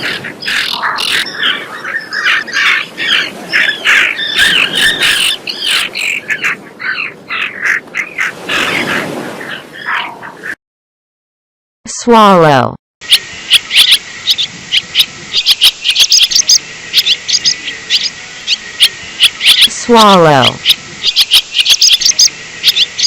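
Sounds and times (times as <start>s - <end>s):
terns calling: 0.0s - 10.6s, 13.0s - 23.0s.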